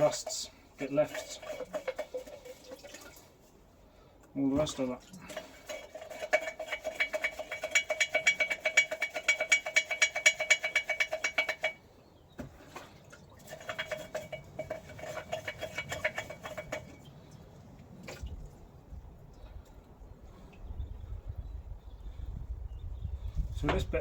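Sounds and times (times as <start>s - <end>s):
rhythmic metal scraping: 0.0s - 2.8s, 5.3s - 11.8s, 13.5s - 17.1s
metal ringing: 6.3s - 11.8s.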